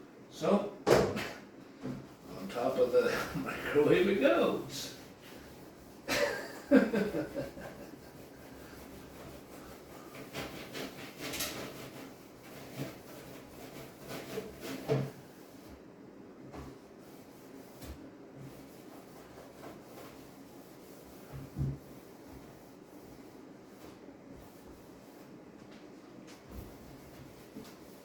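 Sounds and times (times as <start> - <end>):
rubbing and scrubbing: 1.9 - 15.9, 16.5 - 28.0.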